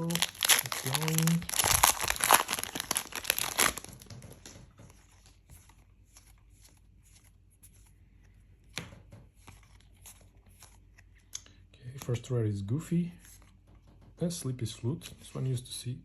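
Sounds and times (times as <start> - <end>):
foil wrapper tearing and crinkling: 0.0 - 4.4
cards rustling: 0.0 - 8.4.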